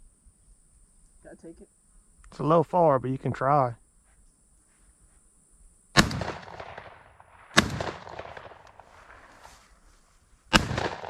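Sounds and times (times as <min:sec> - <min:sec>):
shotgun shots echoing: 0:06.0 - 0:09.5, 0:10.5 - 0:11.0.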